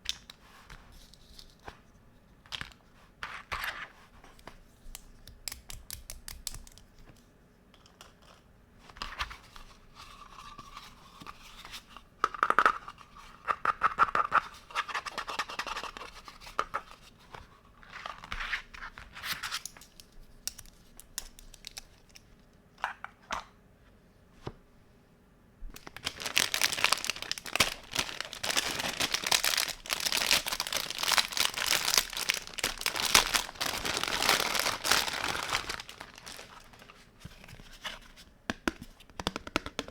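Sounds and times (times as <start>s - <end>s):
packaging crinkling and tearing: 25.8s - 37.0s.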